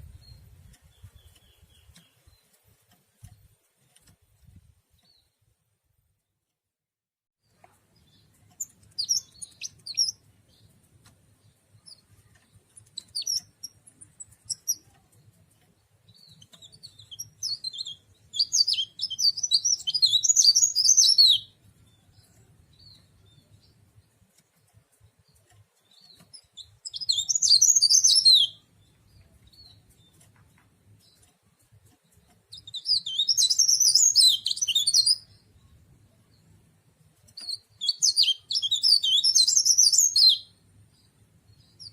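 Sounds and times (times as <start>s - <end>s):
bird twittering: 26.4s - 28.6s, 32.6s - 35.3s, 37.4s - 40.4s.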